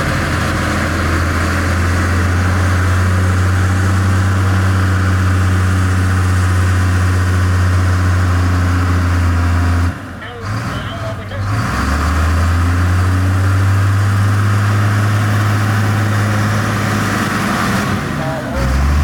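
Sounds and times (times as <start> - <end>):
heavy diesel engine droning: 0.0 - 19.0.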